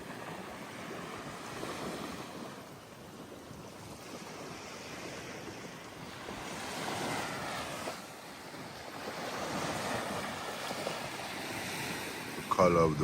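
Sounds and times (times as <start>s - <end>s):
surf washing onto beach: 0.0s - 13.0s
wind buffeting microphone: 0.0s - 13.0s.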